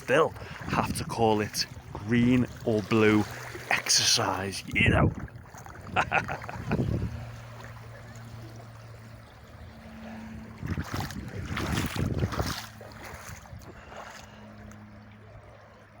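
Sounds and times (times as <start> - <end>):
wind buffeting microphone: 0.0 - 3.8, 4.5 - 8.3, 9.2 - 14.2.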